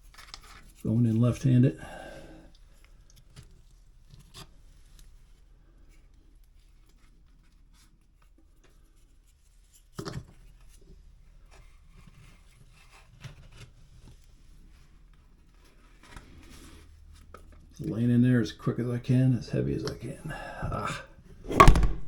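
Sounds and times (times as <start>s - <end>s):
knock: 21.5s - 22.0s.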